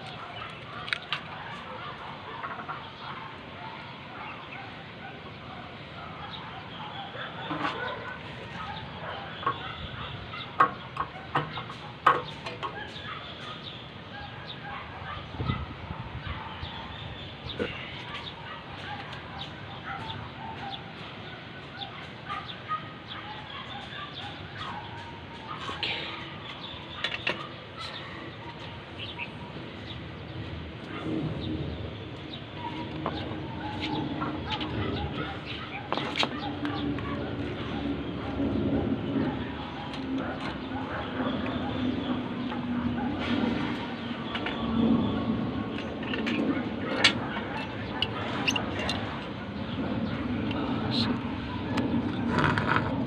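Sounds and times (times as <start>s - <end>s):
birds calling: 0.0s - 53.0s
sharp knocks and clicks: 10.6s - 12.8s.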